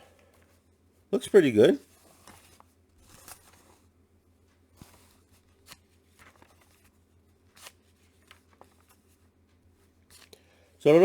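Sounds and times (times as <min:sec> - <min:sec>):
comic book rustling and tapping: 0:01.9 - 0:10.3.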